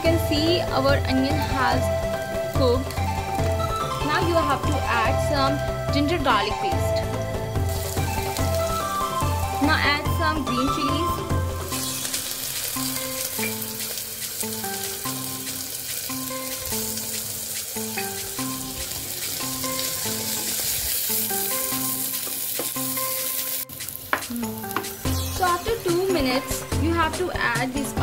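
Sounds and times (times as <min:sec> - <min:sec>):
onions sizzling in hot oil: 0:00.0 - 0:28.0
soft background music: 0:00.0 - 0:28.0.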